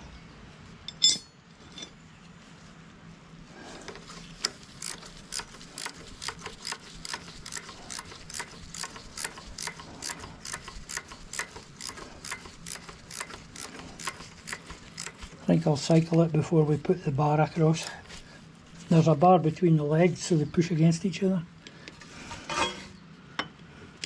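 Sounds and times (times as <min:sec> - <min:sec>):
ratchet wrench clicking: 0:04.3 - 0:15.2.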